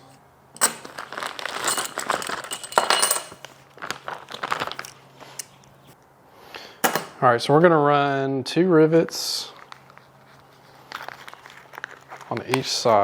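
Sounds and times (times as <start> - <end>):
metal shims clinking: 0.6 - 3.5.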